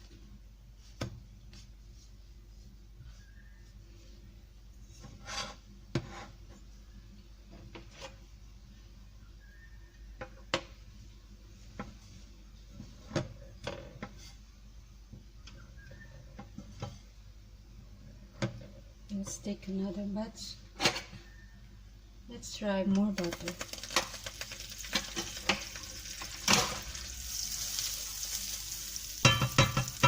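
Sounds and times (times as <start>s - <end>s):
utensil scraping a pan: 5.0s - 6.4s.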